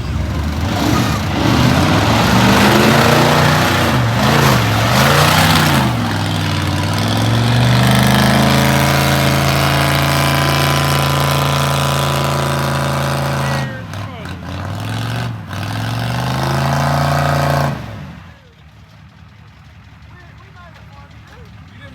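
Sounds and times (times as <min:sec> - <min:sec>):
rushing noise: 0:00.0 - 0:11.7
truck engine revving: 0:00.0 - 0:20.1.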